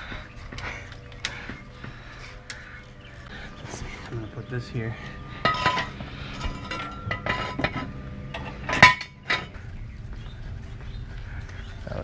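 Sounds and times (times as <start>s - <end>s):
metal objects clinking: 5.4s - 9.6s.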